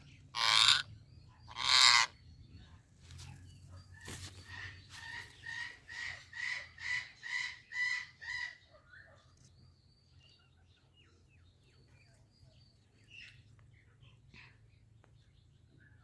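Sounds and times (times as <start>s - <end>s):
parrot squawking: 0.4s - 0.9s, 1.5s - 2.1s.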